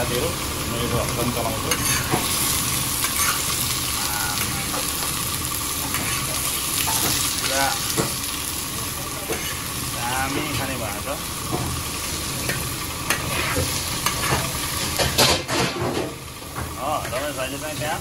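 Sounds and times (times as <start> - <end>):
food sizzling in a wok: 0.0 - 18.0
metal spatula scraping pan: 1.7 - 2.3, 3.0 - 3.6, 9.3 - 9.7, 12.4 - 15.6.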